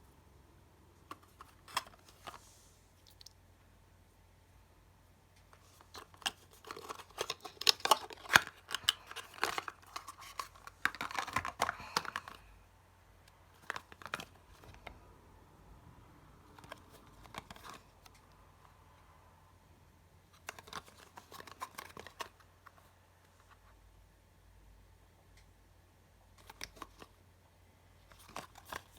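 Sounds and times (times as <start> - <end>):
packaging crinkling and tearing: 5.7 - 12.5.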